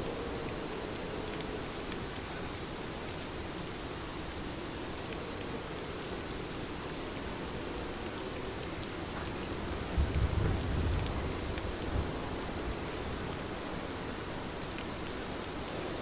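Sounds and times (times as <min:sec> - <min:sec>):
heavy rain falling: 0:00.0 - 0:16.0
low rumble of thunder: 0:09.2 - 0:13.3.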